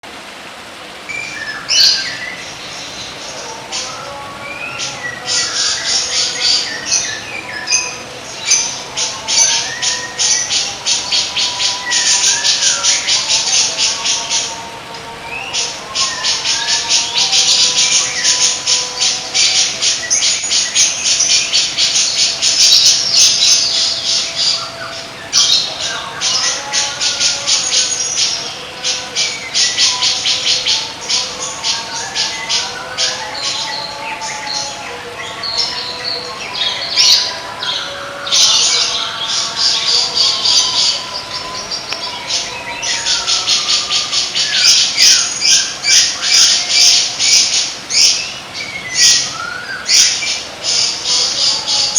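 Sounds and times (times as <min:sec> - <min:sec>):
whistled warbling bird phrases: 0:15.2 - 0:51.9.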